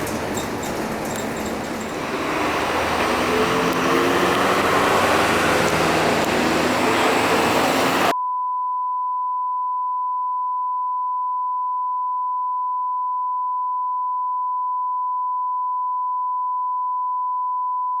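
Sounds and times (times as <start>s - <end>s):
bus ride sound: 0.0s - 8.1s
sine test tone: 8.1s - 18.0s.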